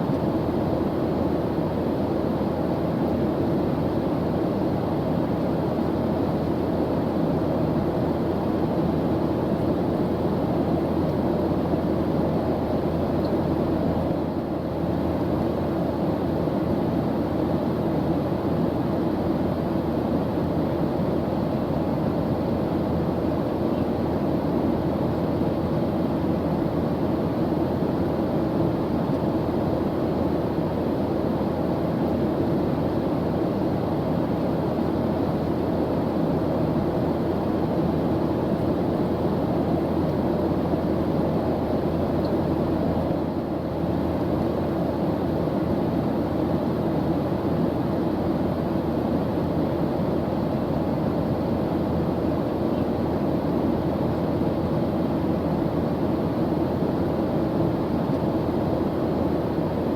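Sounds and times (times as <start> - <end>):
airplane engine drone: 0.0 - 59.9.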